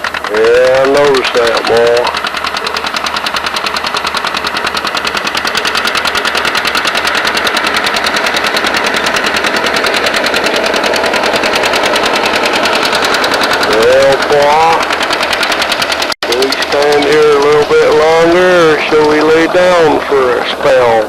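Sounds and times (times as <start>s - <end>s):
tractor engine popping exhaust: 0.0s - 21.0s.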